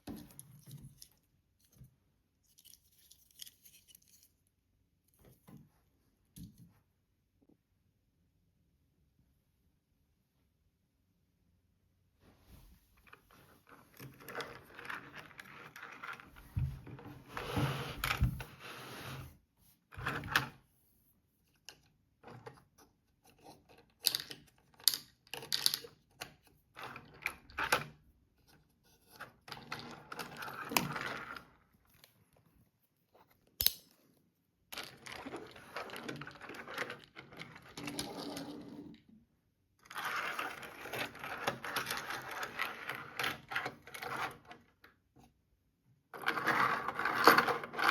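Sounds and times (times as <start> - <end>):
toy cars clicking and clattering: 46.2 - 47.9.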